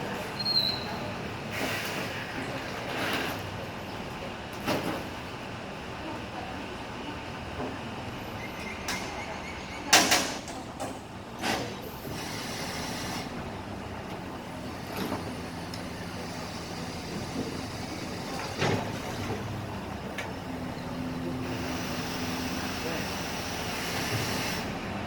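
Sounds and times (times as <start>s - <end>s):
garbage truck engine running: 11.1s - 25.0s.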